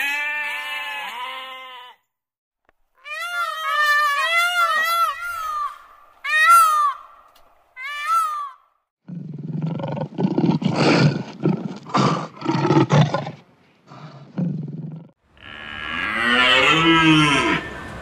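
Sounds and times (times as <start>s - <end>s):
cow mooing: 15.4s - 17.8s.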